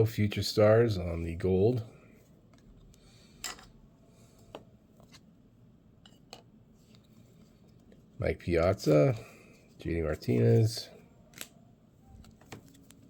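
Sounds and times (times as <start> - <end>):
trading cards being flipped through: 11.3 - 11.6, 12.2 - 13.0.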